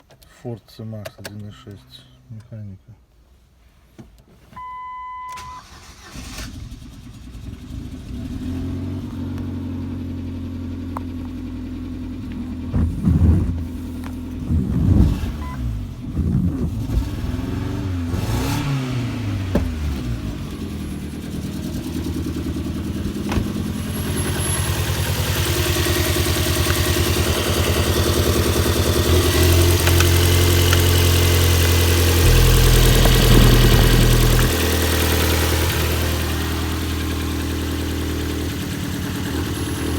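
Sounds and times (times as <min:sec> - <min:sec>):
dashboard beep: 0:04.6 - 0:05.6
car engine starting and idling: 0:05.3 - 0:39.9
car engine revving: 0:12.2 - 0:39.9.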